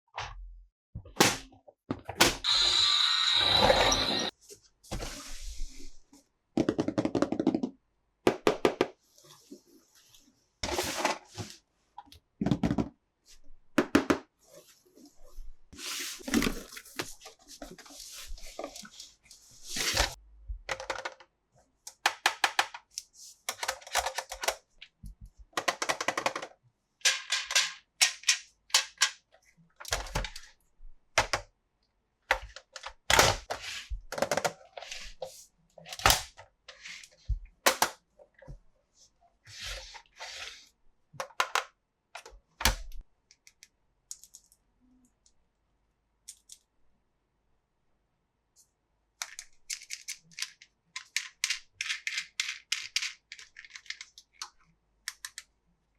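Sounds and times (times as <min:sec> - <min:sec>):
plastic toys clicking and snapping: 0:21.9 - 0:24.7, 0:25.6 - 0:29.2, 0:46.2 - 0:46.7, 0:49.2 - 0:55.6.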